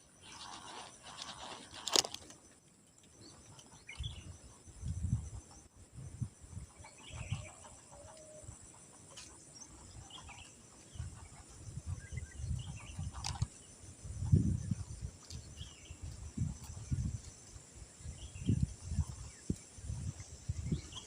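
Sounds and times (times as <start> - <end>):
insect drone: 0.0 - 21.0
bird chirps: 2.4 - 8.4.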